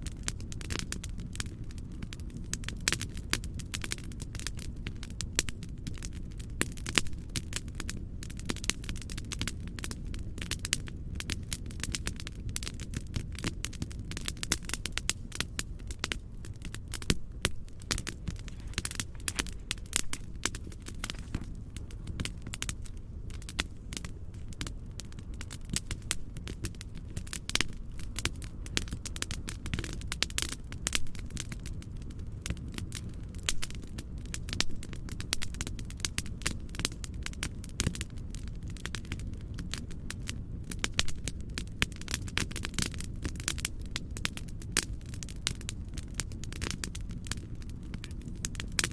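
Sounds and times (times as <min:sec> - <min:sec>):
fire crackling in fireplace: 0:00.0 - 0:48.9.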